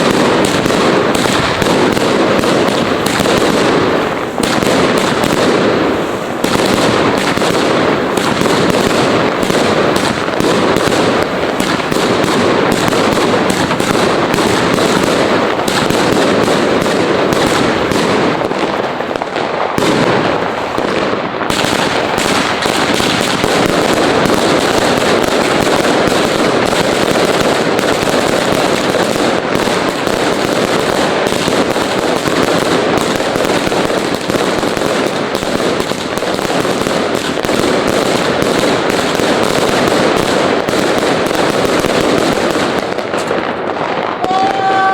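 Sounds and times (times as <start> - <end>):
fireworks and firecrackers banging: 0.0 - 44.9.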